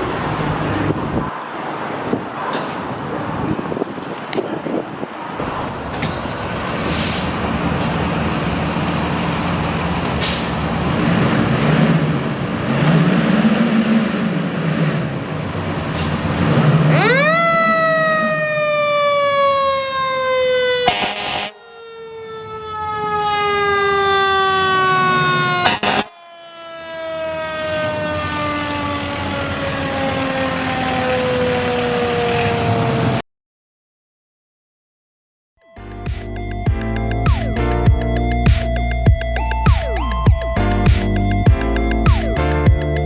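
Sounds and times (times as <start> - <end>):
diesel engine revving: 0.0 - 21.5, 27.4 - 33.2
fire truck siren: 5.1 - 33.2, 37.4 - 40.5.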